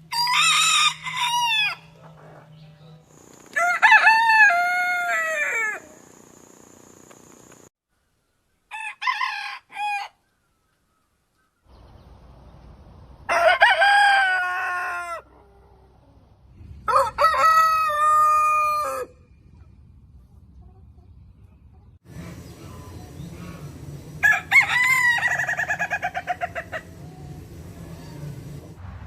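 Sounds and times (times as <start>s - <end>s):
rooster crowing: 0.0s - 2.1s, 3.4s - 6.2s, 8.7s - 10.2s, 13.2s - 16.0s, 16.9s - 19.2s, 23.6s - 28.7s
short rooster calls: 3.5s - 6.1s.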